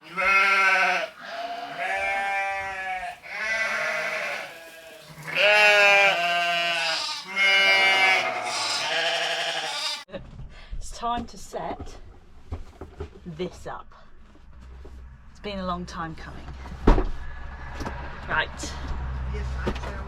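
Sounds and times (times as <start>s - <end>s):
sheep bleating: 0.0s - 10.1s.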